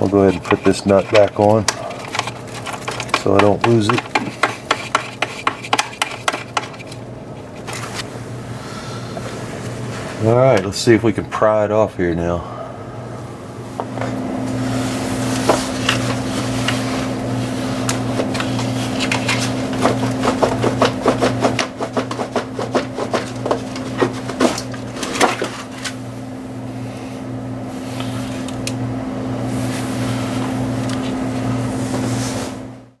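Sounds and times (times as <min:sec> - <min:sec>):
steady low hum: 0:00.0 - 0:33.0
pry bar knocking on metal: 0:02.1 - 0:06.9.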